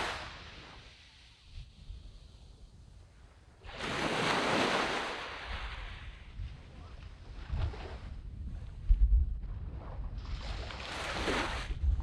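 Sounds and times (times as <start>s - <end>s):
sea waves washing on sand: 0.0s - 2.6s, 3.6s - 8.2s, 9.6s - 12.0s
wind rumble on microphone: 0.0s - 12.0s.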